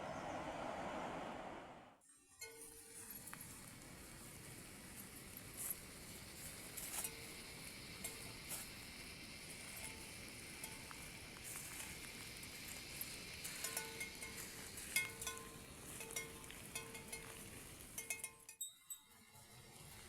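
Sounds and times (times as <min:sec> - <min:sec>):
rain hissing: 0:04.0 - 0:16.0.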